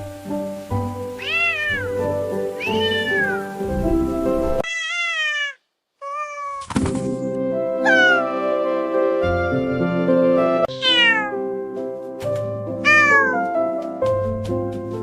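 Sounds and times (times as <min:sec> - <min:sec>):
background music: 0:00.0 - 0:04.6, 0:06.8 - 0:15.0
cat meowing: 0:01.2 - 0:03.6, 0:04.6 - 0:06.7, 0:07.8 - 0:08.4, 0:10.7 - 0:11.5, 0:12.8 - 0:13.5.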